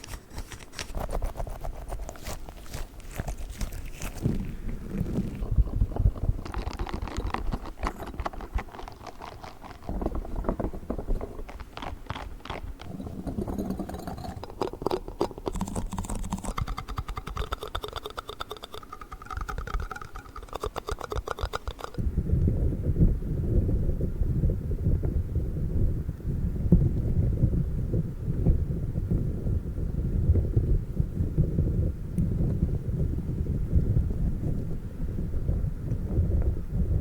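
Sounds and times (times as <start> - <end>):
fast tapping and scratching: 0.0 - 22.0.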